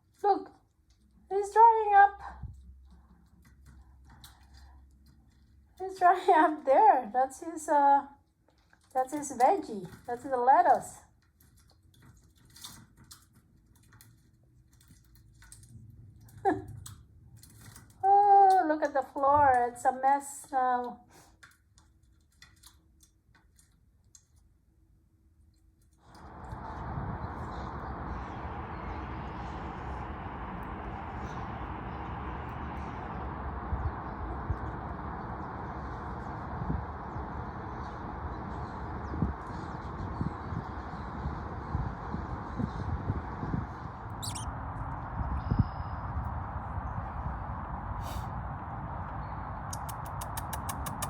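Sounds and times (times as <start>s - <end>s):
low steady hum: 23.6s - 51.0s
electric blower rushing air: 26.1s - 45.0s
faint clicks: 49.7s - 51.0s.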